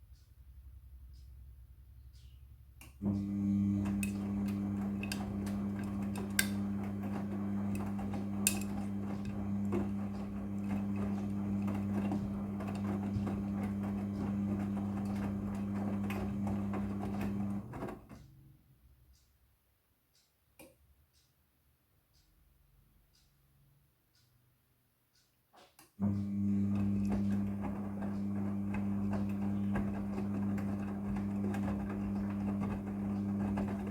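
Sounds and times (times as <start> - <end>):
washing machine humming: 3.0 - 18.4, 26.0 - 33.9.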